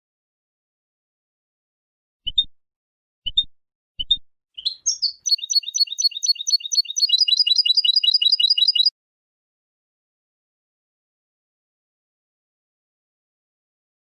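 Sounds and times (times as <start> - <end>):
goldfinch singing: 4.6 - 8.9.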